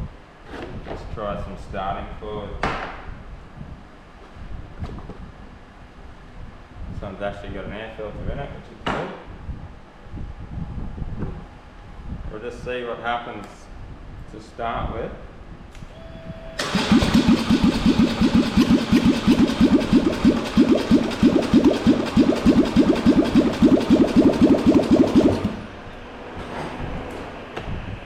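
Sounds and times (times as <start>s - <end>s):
electric starter cranking engine: 16.6s - 25.8s.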